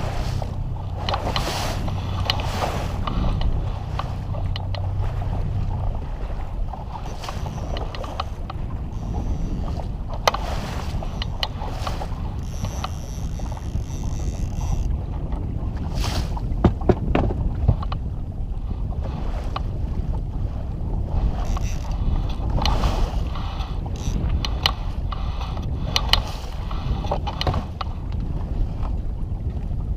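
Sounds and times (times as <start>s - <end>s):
wind buffeting microphone: 0.0s - 29.9s
short knocks: 16.6s - 17.8s.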